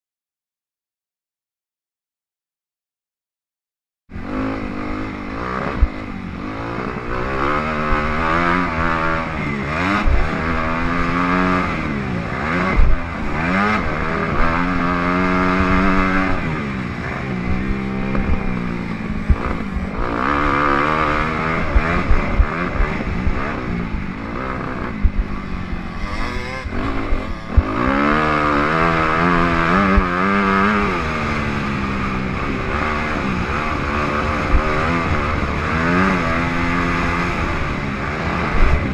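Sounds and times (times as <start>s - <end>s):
dirt bike engine revving: 4.1s - 38.9s
sharp thumps: 17.4s - 30.9s.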